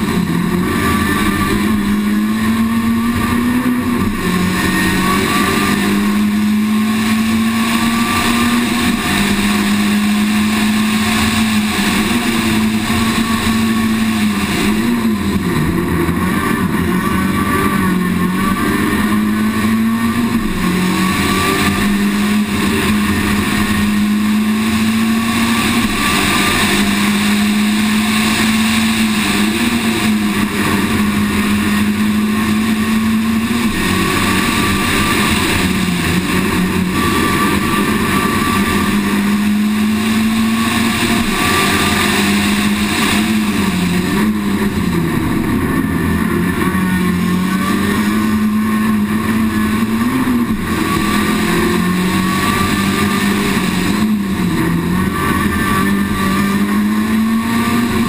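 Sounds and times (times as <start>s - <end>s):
rally car engine at high revs: 0.0s - 58.0s.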